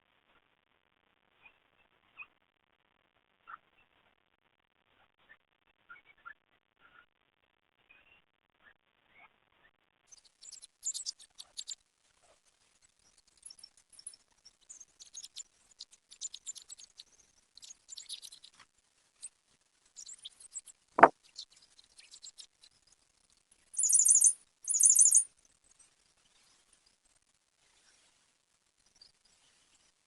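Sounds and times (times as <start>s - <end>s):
small birds chirping: 10.1s - 11.8s, 16.1s - 18.6s, 23.8s - 25.2s
loud rapid bird trills: 23.8s - 25.2s.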